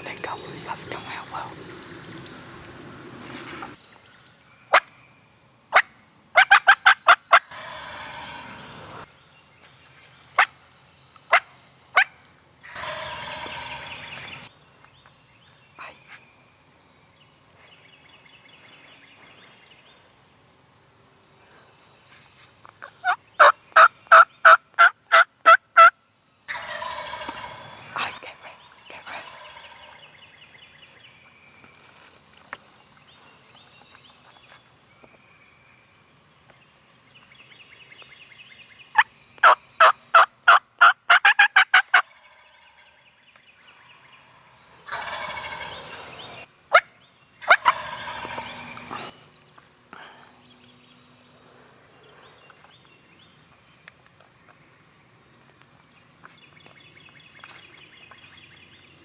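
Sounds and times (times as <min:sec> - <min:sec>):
turkey call yelping: 0:05.7 - 0:08.5, 0:12.0 - 0:14.1, 0:26.5 - 0:27.7, 0:39.0 - 0:42.4, 0:44.9 - 0:46.0, 0:46.7 - 0:48.7
turkey gobbling: 0:05.7 - 0:08.7, 0:11.3 - 0:14.4, 0:22.9 - 0:25.9, 0:26.5 - 0:27.8, 0:29.0 - 0:30.1, 0:38.9 - 0:42.8, 0:44.8 - 0:49.1.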